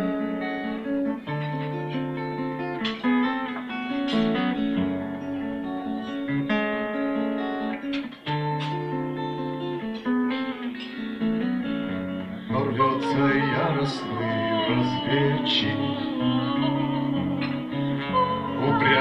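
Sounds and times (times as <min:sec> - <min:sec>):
acoustic guitar picking: 0:00.0 - 0:19.0.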